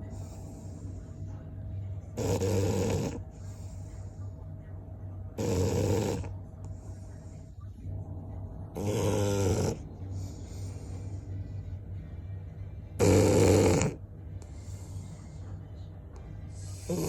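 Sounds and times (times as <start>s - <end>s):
dog breathing softly: 0.0s - 1.5s, 2.3s - 4.5s, 8.8s - 11.6s, 13.0s - 17.0s
dog snoring: 2.1s - 3.7s, 5.4s - 6.4s, 8.7s - 11.2s, 13.0s - 15.4s, 16.6s - 17.0s.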